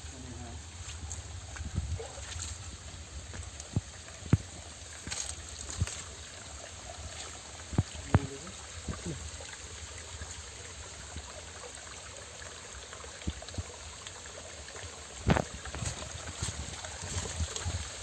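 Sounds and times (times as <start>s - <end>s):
mountain stream flowing: 0.0s - 18.0s.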